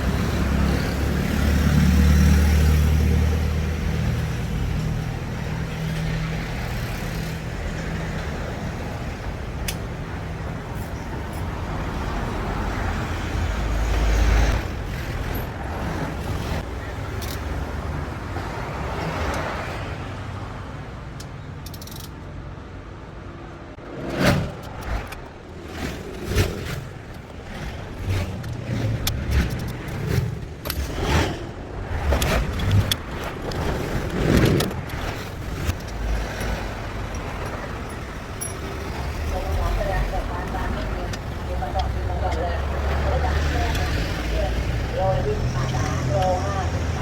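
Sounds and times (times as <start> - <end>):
road vehicle passing: 0.0 - 47.0
steady traffic noise: 0.0 - 47.0
metal tools clinking on engine parts: 21.6 - 22.2, 35.7 - 39.4.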